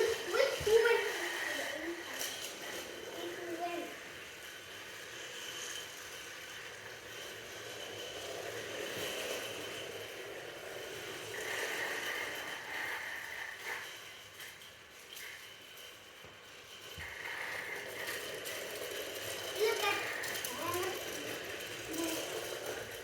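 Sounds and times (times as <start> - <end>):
rattling and scraping: 0.0 - 23.0
toy train motor whirring: 0.0 - 23.0.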